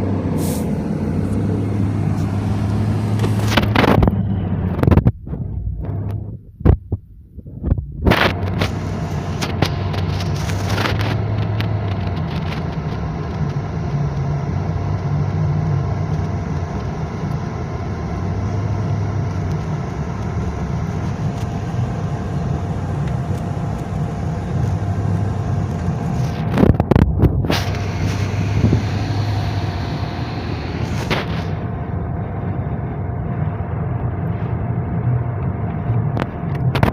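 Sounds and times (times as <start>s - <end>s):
car engine rumble: 0.0s - 36.9s
faint steady whine: 0.0s - 36.9s.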